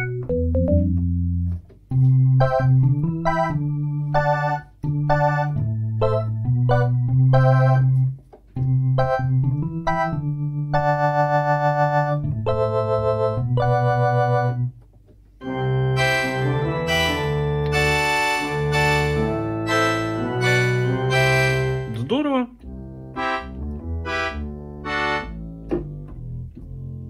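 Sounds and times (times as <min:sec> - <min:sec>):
keyboard organ chords: 0:00.0 - 0:27.0
brighter keyboard voice: 0:16.0 - 0:22.6, 0:23.2 - 0:25.4.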